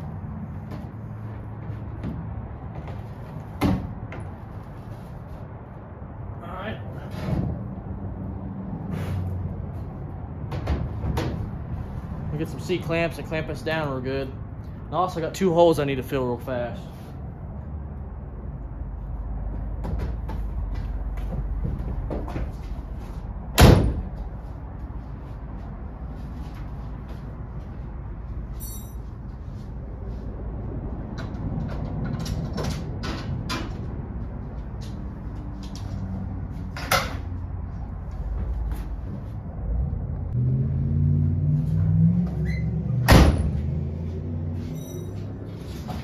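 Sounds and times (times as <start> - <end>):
low engine hum: 16.8 - 46.0.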